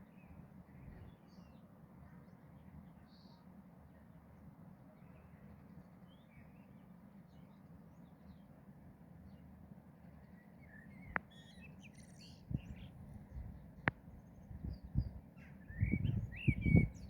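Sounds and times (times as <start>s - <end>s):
bird chirps: 10.4s - 17.0s.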